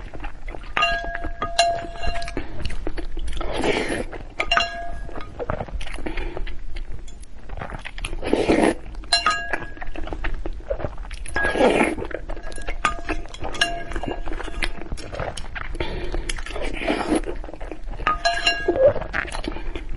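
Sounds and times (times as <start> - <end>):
eating sounds at microphone: 0.0 - 19.9
utensils clinking against bowl: 0.8 - 2.7, 4.4 - 5.4, 9.1 - 9.8, 12.4 - 14.8, 18.0 - 19.6.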